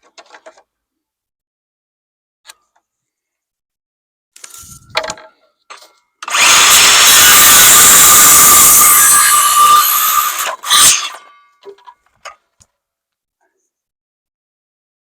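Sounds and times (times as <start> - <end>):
power tool cutting wood: 6.2 - 11.2.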